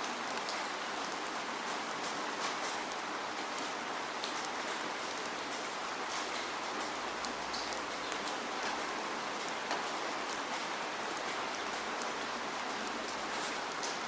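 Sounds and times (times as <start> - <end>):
raindrops ticking on a surface: 0.0 - 14.0
steady rain hiss: 0.0 - 14.0.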